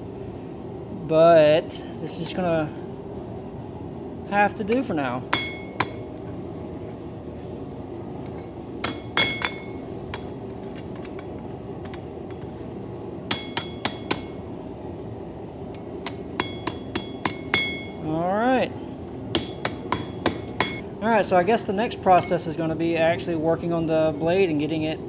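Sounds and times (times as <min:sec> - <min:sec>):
hammer striking steel on anvil: 0:04.7 - 0:06.4, 0:08.2 - 0:14.5, 0:15.7 - 0:18.2, 0:19.1 - 0:20.8.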